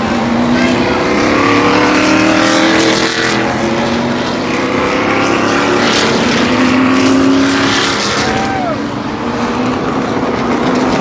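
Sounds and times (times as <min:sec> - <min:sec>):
race car engines droning past: 0:00.0 - 0:11.0.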